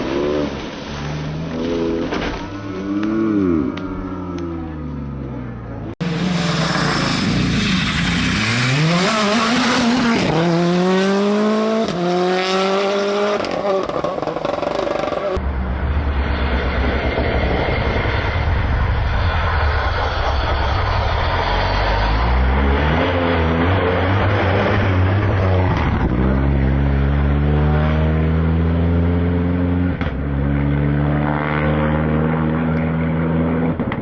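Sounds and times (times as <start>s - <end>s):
rally car engine accelerating: 0.0s - 18.7s, 19.5s - 34.0s.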